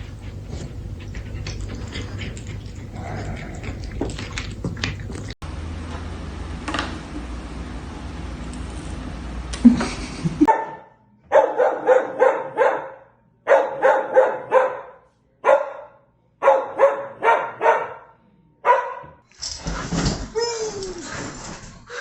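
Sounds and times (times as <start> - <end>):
dog barking: 10.5 - 19.2.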